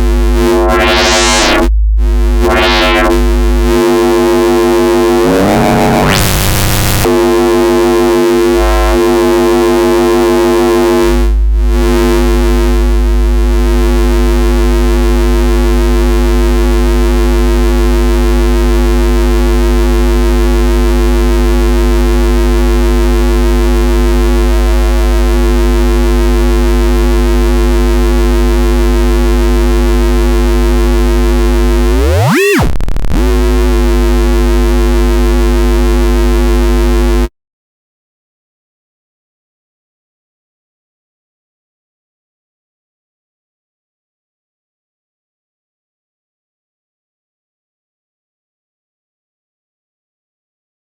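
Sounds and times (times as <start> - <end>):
deep sub-bass: 0.0 - 7.2, 11.0 - 37.3
synthesizer bass note: 0.0 - 37.3.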